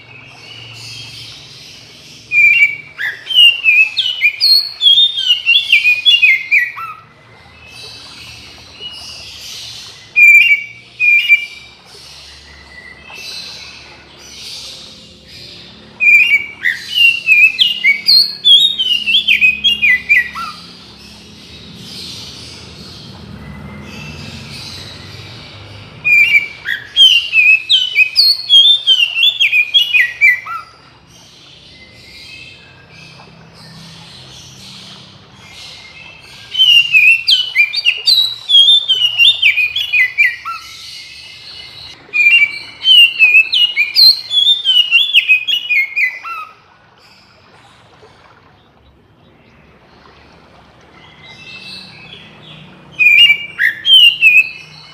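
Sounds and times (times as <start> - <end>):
bird singing whistled notes: 2.2 - 7.0, 9.8 - 13.8, 15.4 - 20.7, 26.0 - 30.8, 35.6 - 46.5, 52.9 - 54.9.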